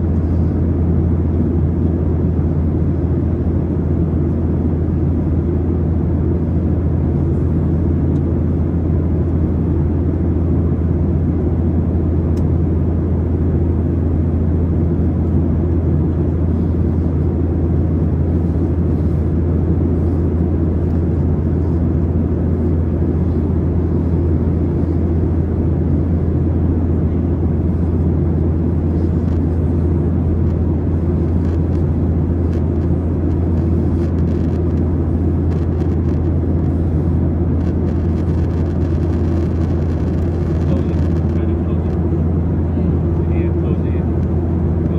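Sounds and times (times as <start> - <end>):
airplane drone: 0.0 - 44.9.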